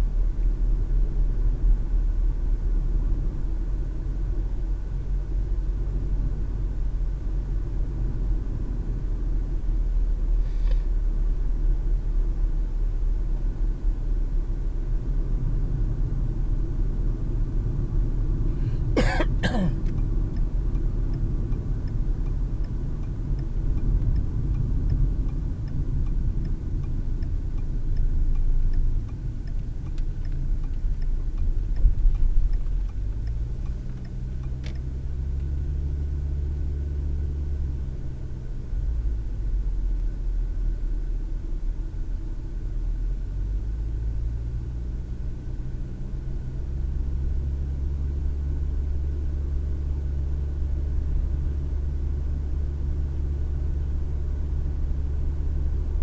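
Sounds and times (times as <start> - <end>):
road and engine rumble: 0.0 - 56.0
light regular ticking: 19.8 - 35.6.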